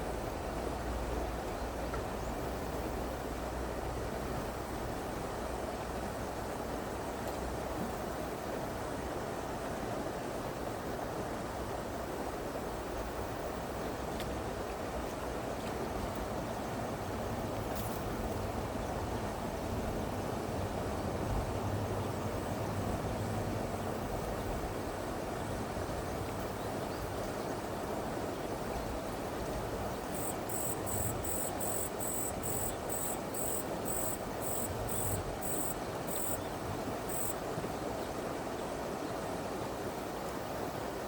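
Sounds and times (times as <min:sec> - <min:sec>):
stream flowing: 0:00.0 - 0:41.0
insect chirping: 0:30.1 - 0:36.5, 0:37.1 - 0:37.4.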